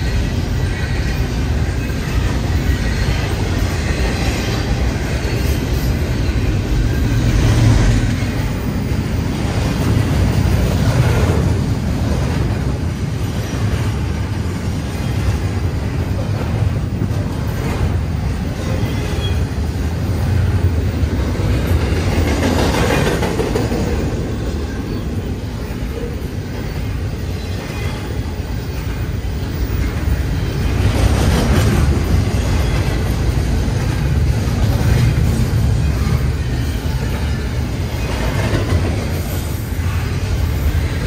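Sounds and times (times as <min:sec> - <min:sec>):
train wheels rumbling on rails: 0:00.0 - 0:41.0.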